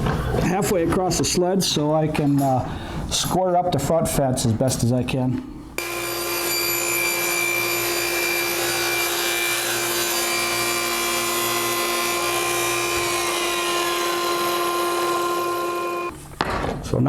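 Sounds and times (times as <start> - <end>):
saw blade cutting: 5.8 - 16.1
table saw humming: 5.8 - 16.1.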